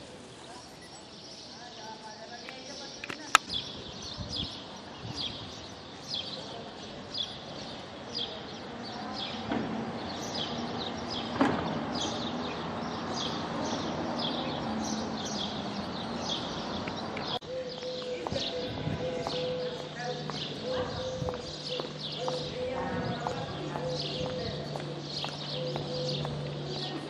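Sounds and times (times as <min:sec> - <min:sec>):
outdoor street background: 0:00.0 - 0:27.0.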